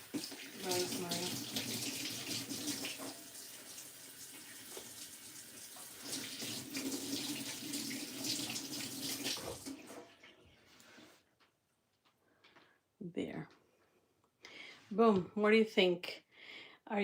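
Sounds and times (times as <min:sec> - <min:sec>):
tap water splashing into sink: 0:00.0 - 0:10.2.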